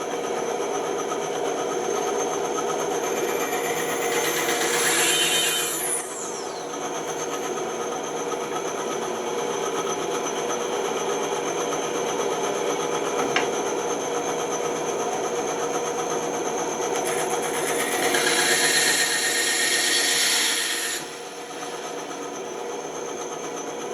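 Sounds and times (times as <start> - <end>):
bandsaw motor hum: 1.1 - 9.1, 12.6 - 23.9
bandsaw cutting wood: 3.0 - 6.4, 17.0 - 22.2.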